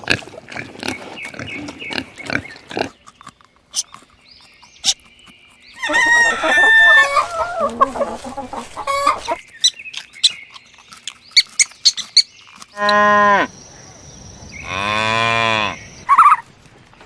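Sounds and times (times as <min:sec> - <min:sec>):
chickens clucking: 0:04.8 - 0:10.6, 0:16.0 - 0:16.5
rooster crowing: 0:05.8 - 0:09.4.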